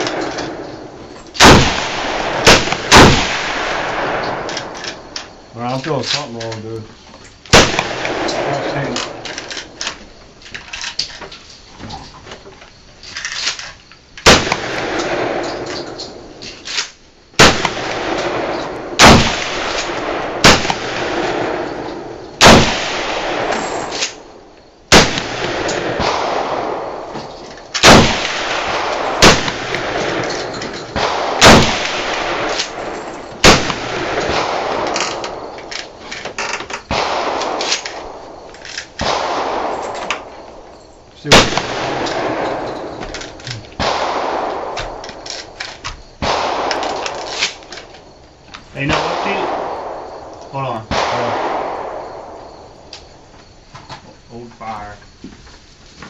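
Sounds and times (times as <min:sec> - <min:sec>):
gunshots with echo: 0:00.0 - 0:04.8, 0:07.5 - 0:09.3, 0:14.3 - 0:16.2, 0:17.4 - 0:27.1, 0:27.8 - 0:35.5, 0:36.9 - 0:40.3, 0:41.2 - 0:43.0, 0:43.8 - 0:45.0, 0:46.2 - 0:47.2, 0:48.8 - 0:52.4.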